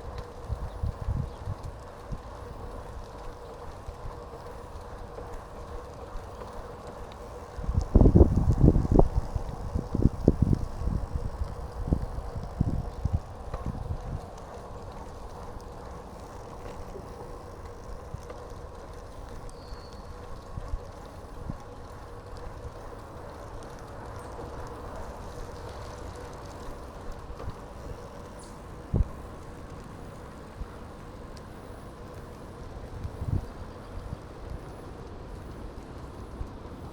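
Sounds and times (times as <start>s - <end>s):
bicycle tyres rolling hum: 0.0s - 36.9s
wind gusts on microphone: 7.6s - 14.3s, 28.9s - 29.4s.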